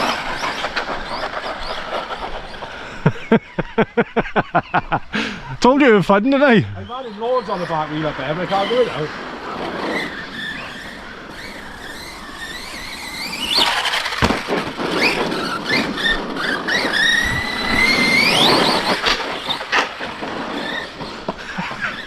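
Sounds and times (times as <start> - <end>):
electric motors whining: 6.8 - 14.4, 15.0 - 22.0
toy trucks knocking on ground: 13.3 - 21.4.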